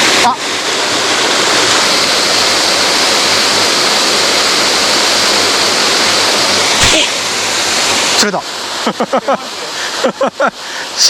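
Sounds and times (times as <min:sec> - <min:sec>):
mountain stream rushing: 0:00.0 - 0:11.0.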